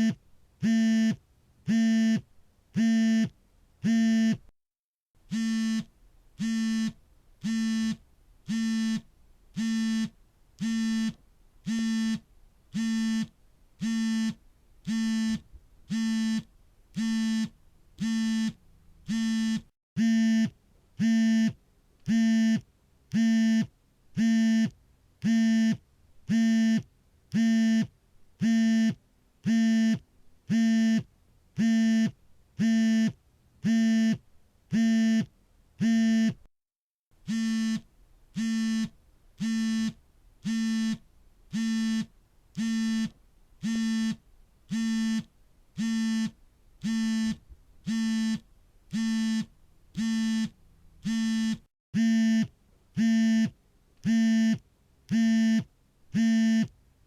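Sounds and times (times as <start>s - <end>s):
phone vibration buzzing: 0.0s - 2.2s, 5.3s - 12.2s, 12.8s - 22.6s, 37.2s - 53.5s, 54.1s - 56.7s.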